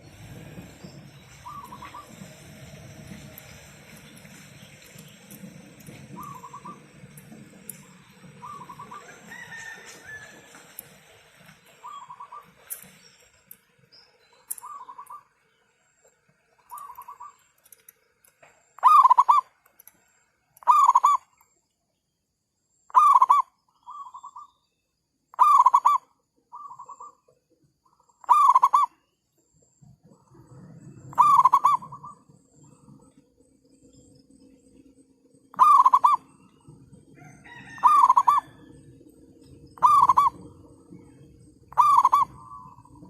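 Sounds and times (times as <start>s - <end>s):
doves cooing: 0.0s - 13.0s, 18.8s - 19.5s, 20.6s - 21.3s, 25.4s - 27.1s, 28.2s - 28.9s, 30.0s - 43.0s.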